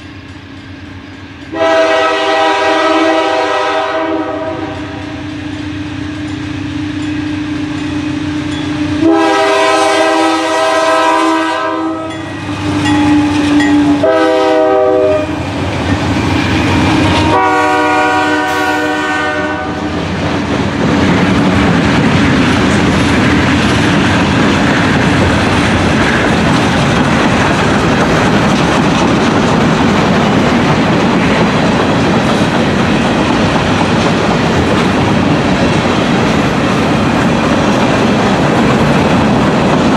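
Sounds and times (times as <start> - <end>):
train wheels rumbling on rails: 0.0 - 39.9
train horn blasts: 1.5 - 5.2, 8.8 - 15.4, 16.6 - 20.0.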